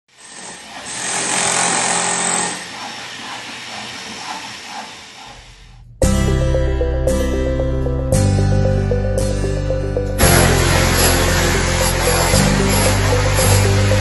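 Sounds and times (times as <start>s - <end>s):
loud music: 6.0s - 14.0s
loud noisy hiss: 10.2s - 14.0s.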